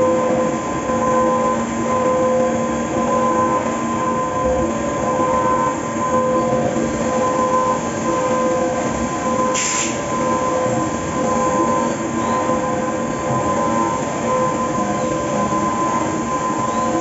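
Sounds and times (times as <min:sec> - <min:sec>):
brief hiss: 0:09.6 - 0:10.0.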